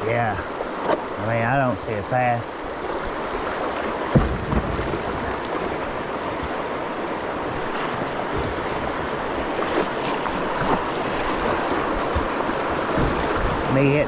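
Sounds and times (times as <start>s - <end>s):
river rapid rushing water: 0.0s - 14.0s
dull low thumps: 4.0s - 6.6s.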